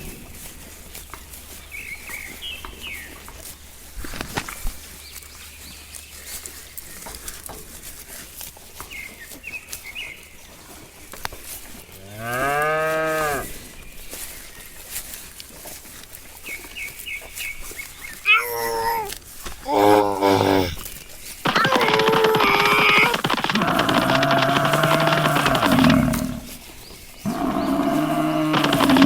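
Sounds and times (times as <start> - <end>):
cow mooing: 12.1 - 13.5, 21.5 - 26.7, 27.3 - 29.0.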